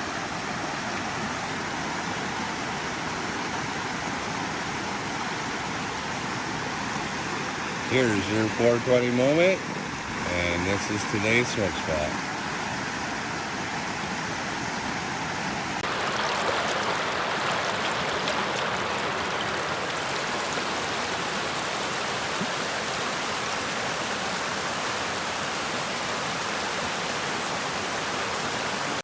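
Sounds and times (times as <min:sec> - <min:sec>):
fast-flowing river rushing: 0:00.0 - 0:29.0.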